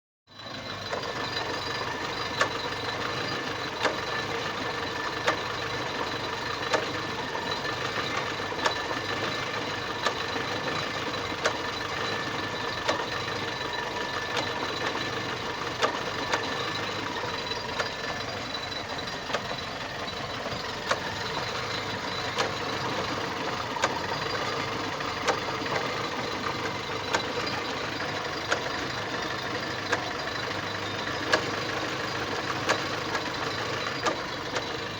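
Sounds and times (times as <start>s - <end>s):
car engine running: 0.3s - 34.9s
engine knocking: 0.3s - 34.9s.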